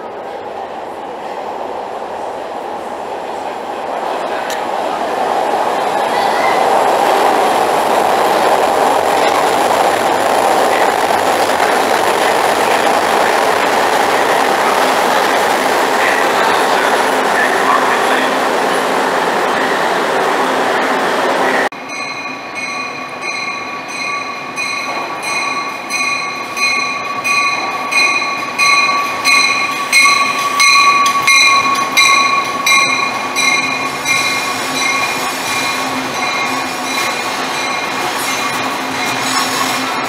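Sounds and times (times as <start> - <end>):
commuter train moving: 0.0 - 40.0
train in underground station: 0.0 - 40.0
train bell ringing: 21.8 - 40.0.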